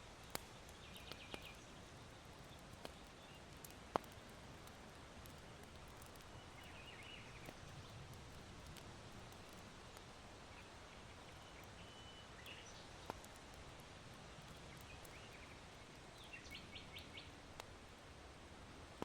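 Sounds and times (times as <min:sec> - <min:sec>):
small birds chirping: 0:00.2 - 0:04.3, 0:05.3 - 0:08.1, 0:09.3 - 0:13.7, 0:14.4 - 0:17.4
charcoal popping: 0:02.4 - 0:10.0.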